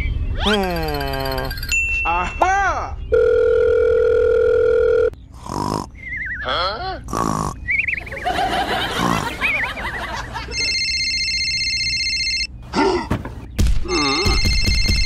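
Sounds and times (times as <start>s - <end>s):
squeaky cartoon voices: 0.3s - 3.0s, 5.8s - 8.1s
electronic phone tone: 3.1s - 5.2s, 10.5s - 12.5s.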